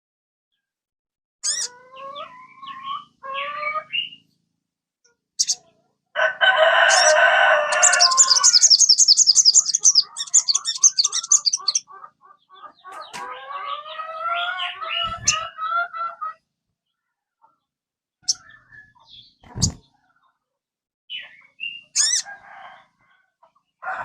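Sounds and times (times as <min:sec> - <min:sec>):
high chattering bird trills: 0:01.4 - 0:04.2, 0:05.4 - 0:05.7, 0:06.9 - 0:16.0, 0:21.1 - 0:22.3
long harsh bird call: 0:06.5 - 0:11.9.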